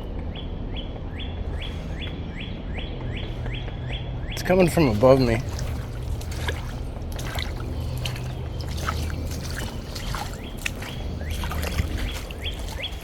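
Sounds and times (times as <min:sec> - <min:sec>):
low rumble: 0:00.0 - 0:13.0
small birds chirping: 0:00.0 - 0:13.0
woodpecker tapping on wood: 0:00.2 - 0:08.7.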